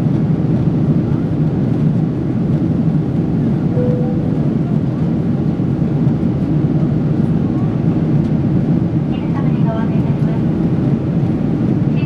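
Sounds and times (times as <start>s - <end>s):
airliner cabin noise: 0.0s - 12.0s
faint steady tone: 3.8s - 4.6s.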